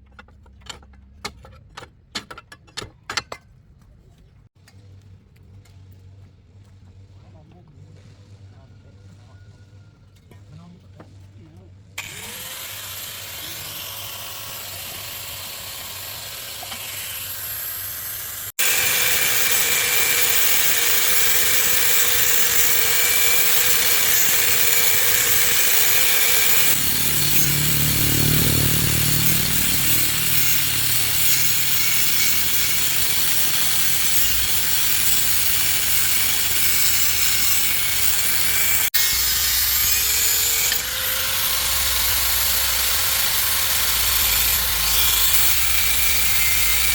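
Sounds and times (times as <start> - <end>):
power tool cutting: 12.0 - 46.9.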